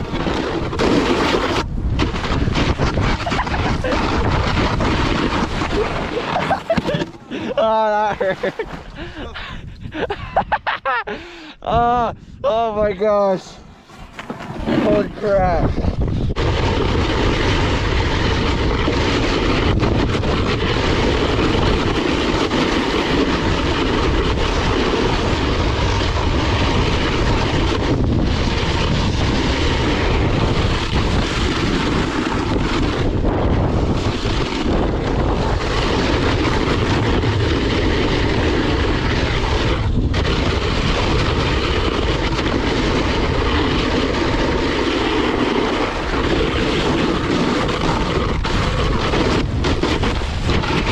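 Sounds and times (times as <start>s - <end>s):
snowboard scraping over icy snow: 0.0s - 10.6s, 13.1s - 50.9s
wind on microphone: 0.0s - 50.9s.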